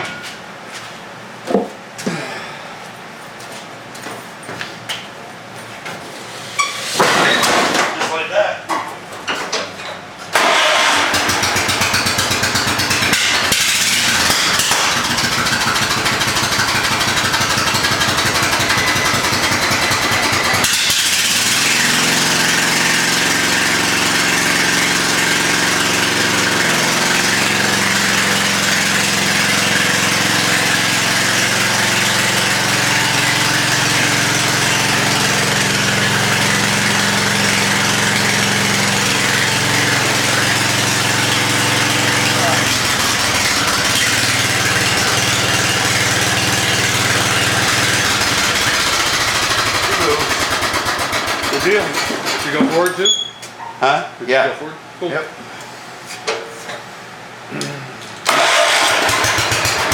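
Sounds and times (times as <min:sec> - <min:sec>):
lawn tractor engine running: 0:10.3 - 0:53.2, 0:58.2 - 0:59.9.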